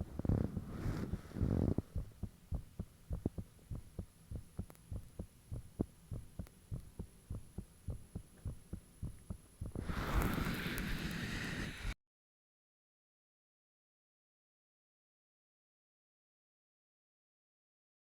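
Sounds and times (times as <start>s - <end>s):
heartbeat thumps: 1.4s - 9.8s
loud rustling hiss: 9.8s - 12.0s.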